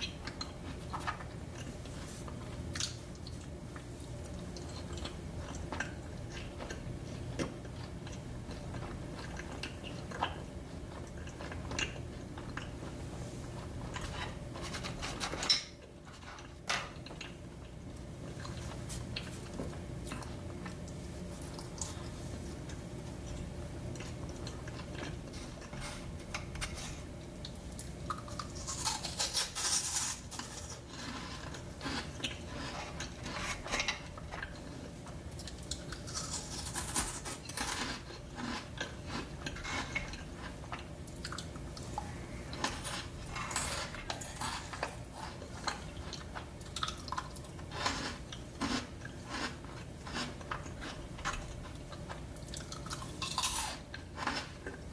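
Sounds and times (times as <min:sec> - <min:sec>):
soft chewing: 0:00.0 - 0:54.9
steady low hum: 0:00.0 - 0:54.9
crisp crunching: 0:35.7 - 0:40.6.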